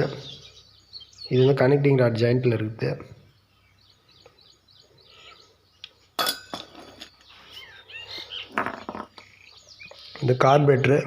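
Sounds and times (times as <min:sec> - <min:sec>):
small birds chirping: 0:00.0 - 0:11.0
sharp clink: 0:06.2 - 0:07.1.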